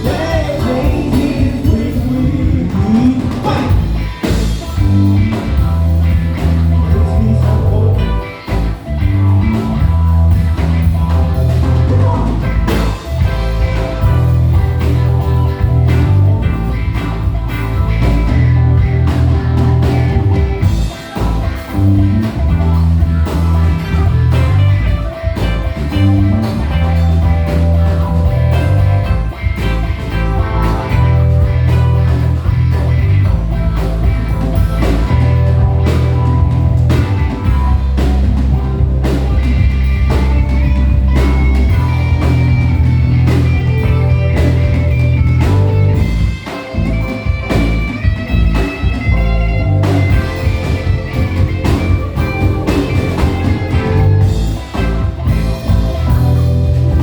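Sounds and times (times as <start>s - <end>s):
bass: 0.0s - 57.0s
drums: 0.0s - 57.0s
electric guitar: 0.0s - 57.0s.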